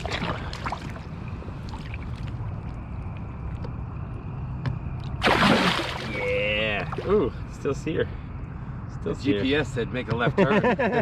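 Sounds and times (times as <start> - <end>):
small splashes: 0.0 - 2.4, 5.2 - 7.2
low outdoor rumble: 0.0 - 11.0.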